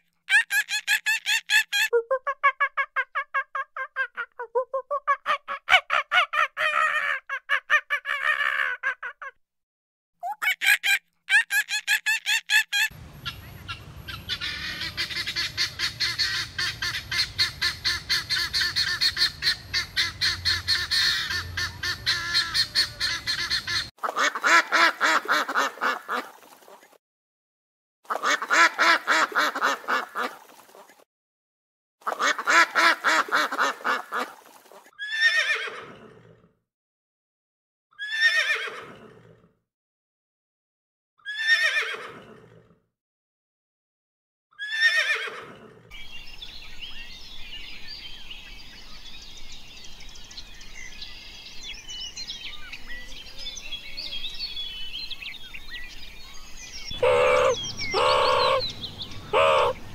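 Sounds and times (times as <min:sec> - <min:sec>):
rapid bird-like animal calls: 0:56.9 - 0:59.9
animal calls falling in pitch: 0:57.0 - 0:58.6, 0:59.3 - 0:59.8.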